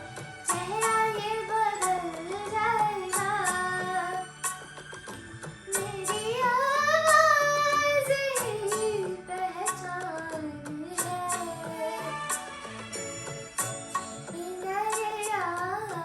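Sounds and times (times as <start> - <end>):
instrumental backing: 0.0 - 16.0
woman singing: 0.5 - 4.3, 5.7 - 12.4, 14.3 - 16.0.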